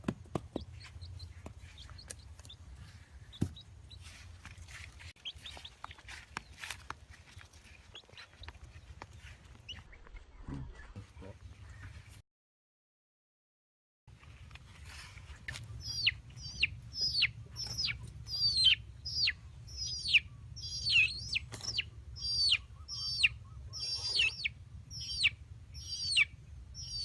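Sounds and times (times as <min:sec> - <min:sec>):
chick peeping: 0:00.5 - 0:12.1, 0:15.1 - 0:27.0
steady low rumble: 0:14.1 - 0:27.0.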